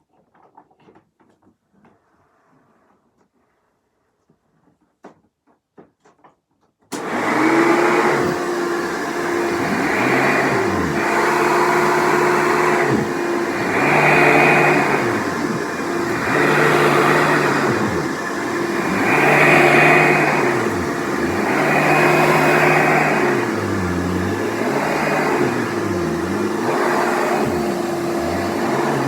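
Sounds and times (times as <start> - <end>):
upright vacuum running: 6.9 - 29.0.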